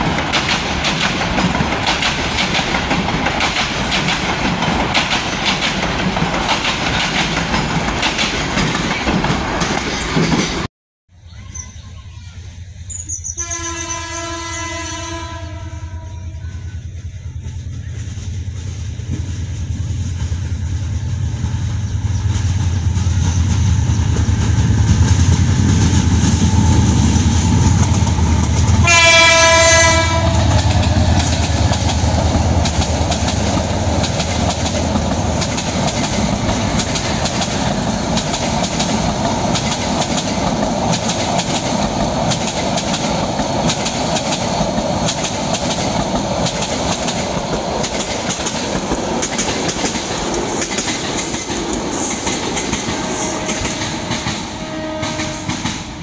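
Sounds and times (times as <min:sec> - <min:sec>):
wheels clickety-clack over rail joints: 0:00.0 - 0:10.7, 0:21.4 - 0:56.0
train horn: 0:13.4 - 0:16.9, 0:28.6 - 0:31.0, 0:52.8 - 0:56.0
locomotive engine rumble: 0:15.8 - 0:52.0.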